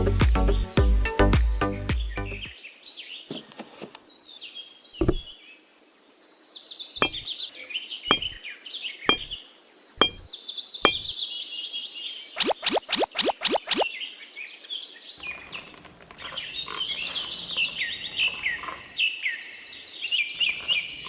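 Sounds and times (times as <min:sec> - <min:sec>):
birds chirping and calling: 0:01.6 - 0:21.0
sharp knocks: 0:05.0 - 0:05.3, 0:07.0 - 0:07.3, 0:08.1 - 0:08.4, 0:09.1 - 0:09.4, 0:10.0 - 0:10.3, 0:10.9 - 0:11.1.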